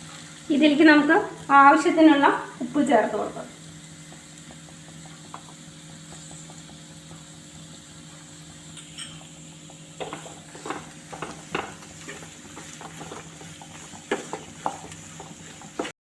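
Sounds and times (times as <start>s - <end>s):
onions sizzling in a pan: 0.0s - 16.0s
spatula scraping a pan: 10.0s - 15.9s.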